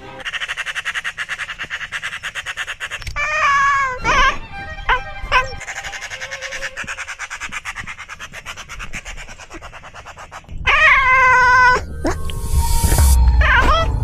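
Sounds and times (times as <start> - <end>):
bird rattling chatter: 0.2 - 3.2, 5.6 - 10.6
bird drawn-out call: 5.3 - 8.3.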